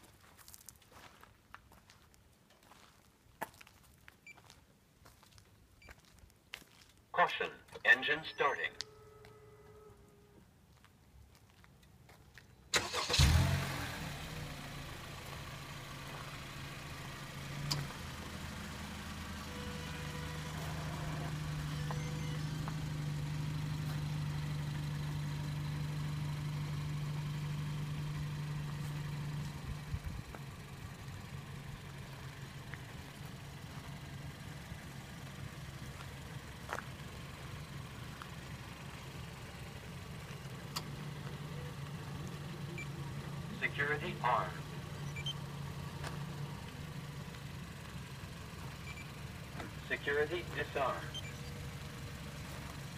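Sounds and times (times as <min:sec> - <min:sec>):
car engine idling: 0:12.7 - 0:52.9.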